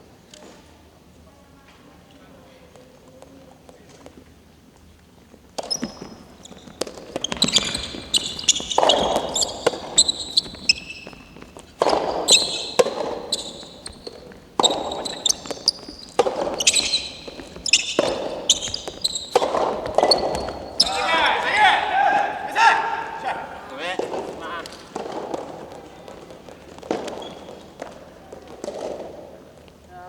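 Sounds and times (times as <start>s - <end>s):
ball bouncing on court: 5.6s - 29.2s
sneakers squeaking on floor: 5.6s - 30.0s
rubber ball popping off rackets: 6.8s - 20.8s.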